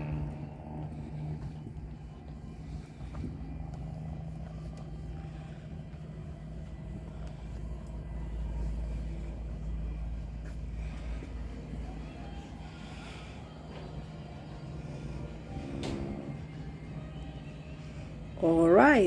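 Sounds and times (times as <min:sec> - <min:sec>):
engine humming and rumbling: 0:00.0 - 0:19.0.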